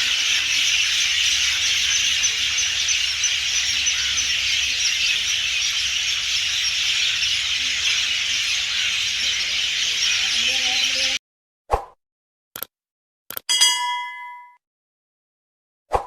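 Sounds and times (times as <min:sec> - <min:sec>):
chorus of birds calling: 0:00.0 - 0:11.2.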